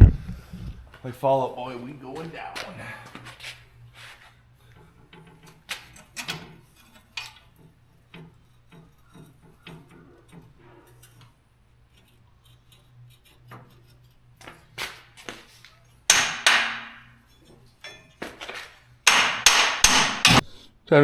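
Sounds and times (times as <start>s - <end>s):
ringing metal-on-metal strikes: 16.1s - 18.2s.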